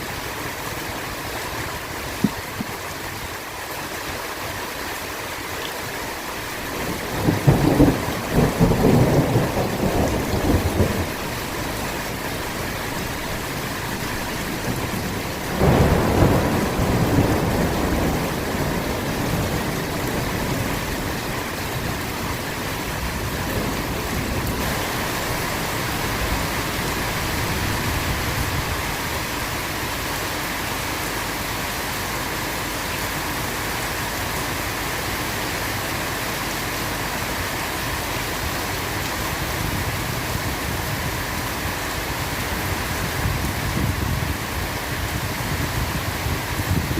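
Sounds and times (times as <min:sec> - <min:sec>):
heavy rain hissing: 0:00.0 - 0:46.9
thunder rumbling: 0:06.5 - 0:30.4.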